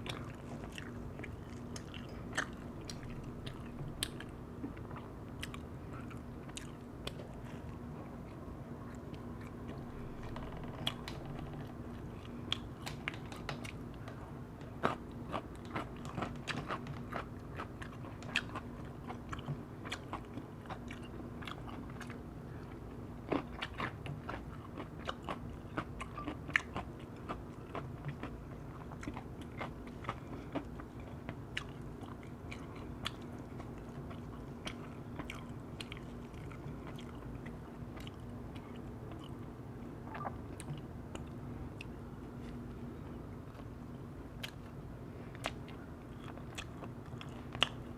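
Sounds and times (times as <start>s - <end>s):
low hum: 0.0s - 14.5s
chewing and crunching: 0.0s - 47.9s.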